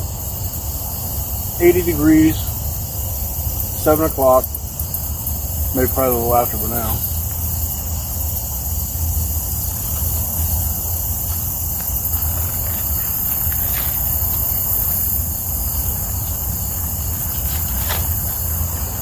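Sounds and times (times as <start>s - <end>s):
crickets and insects chirring: 0.0s - 19.0s.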